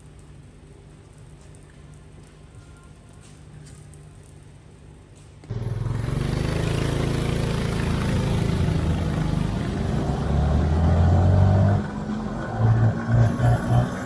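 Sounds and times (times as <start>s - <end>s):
kart engine revving: 5.5s - 14.0s.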